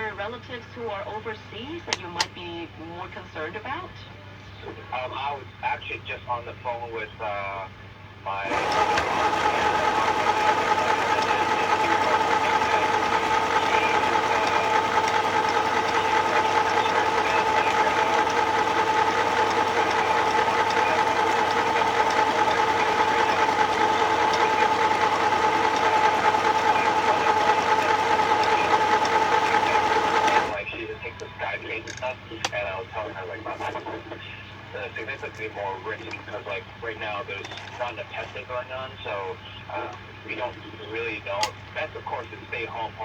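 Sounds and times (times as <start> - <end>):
sewing machine motor whine: 8.4 - 30.6.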